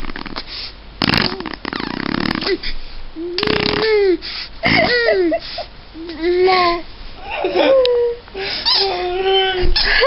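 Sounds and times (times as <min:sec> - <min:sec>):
baby blowing raspberries: 0:00.0 - 0:04.4
baby high-pitched vocal sounds: 0:06.0 - 0:09.7.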